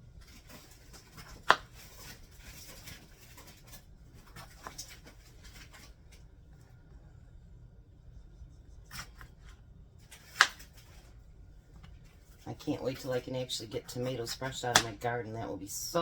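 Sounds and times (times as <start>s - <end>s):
knife slicing tomatoes: 1.0s - 2.5s, 10.1s - 11.0s.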